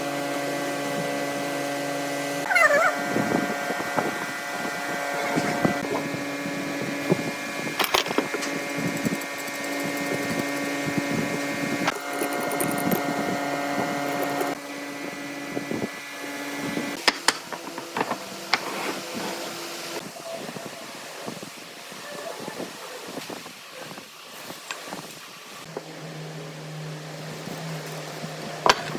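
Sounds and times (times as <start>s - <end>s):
woodworking machine motor hum: 3.6s - 19.2s
knocks and clicks: 11.9s - 13.2s, 13.8s - 14.6s.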